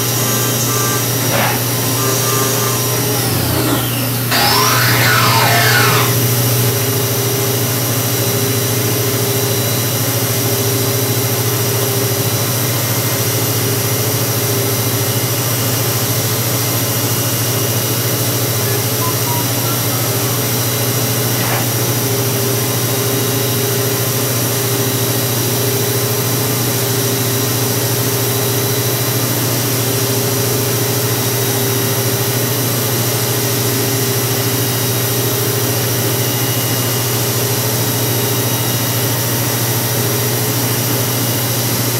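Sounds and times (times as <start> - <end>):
high-pitched machine tones: 0.0 - 6.6, 18.6 - 21.9
milling machine running: 0.0 - 6.6.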